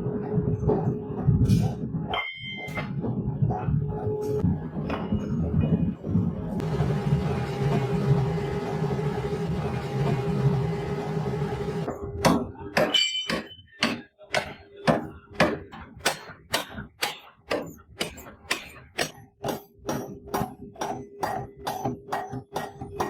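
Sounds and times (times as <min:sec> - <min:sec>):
hammer striking metal: 0:02.1 - 0:02.9, 0:11.9 - 0:23.0.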